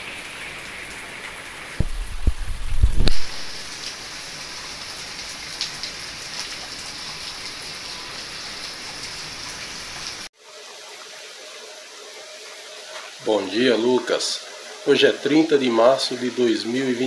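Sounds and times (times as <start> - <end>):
heavy rain falling: 0.0 - 10.3.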